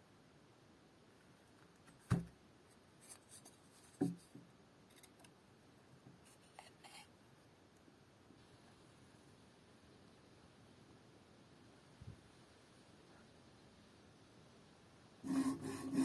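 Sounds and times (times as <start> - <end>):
sharp knocks on wood: 2.1 - 2.3
tool scraping wood: 15.2 - 16.0.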